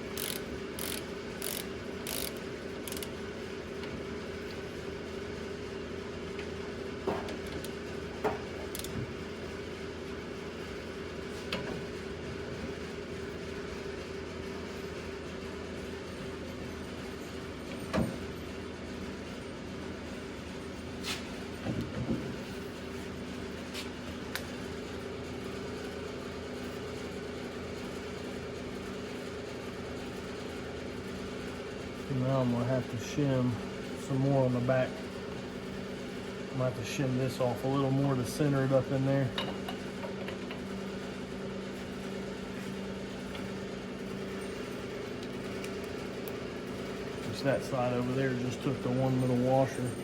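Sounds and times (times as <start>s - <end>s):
machine humming: 0.0s - 3.2s.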